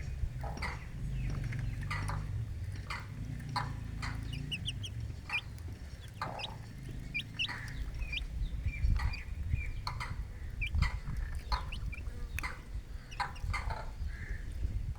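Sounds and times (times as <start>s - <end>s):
chicks peeping: 0.6s - 14.7s
hen clucking: 2.8s - 14.0s.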